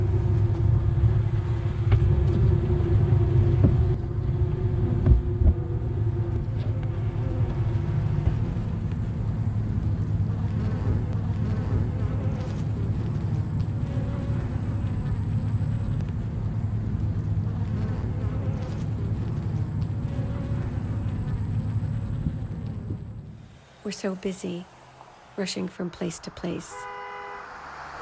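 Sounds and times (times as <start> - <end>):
low rumble: 0.0 - 28.0
honeybees buzzing: 23.3 - 28.0.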